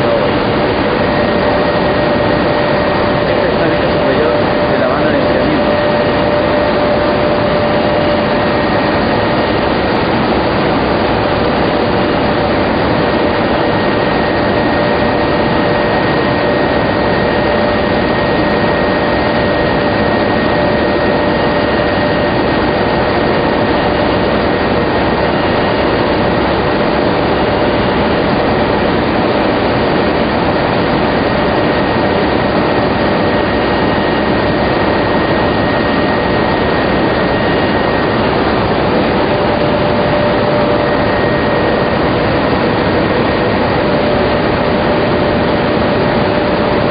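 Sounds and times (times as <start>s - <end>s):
air-moving equipment roaring: 0.0s - 46.9s
machine whining tones: 0.0s - 46.9s.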